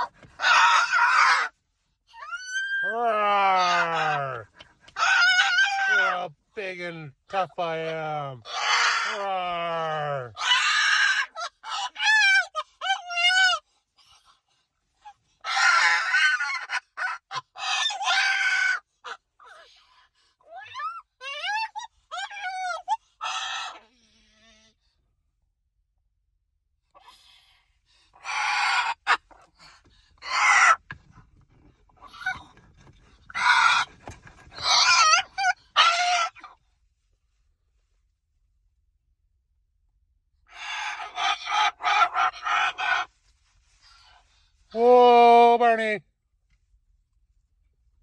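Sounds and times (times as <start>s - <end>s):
cockatoo squawks: 0.0s - 6.2s, 8.4s - 9.3s, 10.4s - 13.6s, 15.4s - 19.7s, 20.5s - 24.6s, 28.2s - 29.5s, 30.2s - 31.0s, 33.3s - 36.6s, 40.5s - 43.1s
cockatoo screeching: 0.0s - 6.3s, 8.4s - 13.6s, 15.0s - 19.7s, 20.5s - 24.7s, 28.2s - 29.5s, 30.2s - 31.0s, 32.0s - 32.6s, 33.3s - 36.6s, 40.5s - 43.2s.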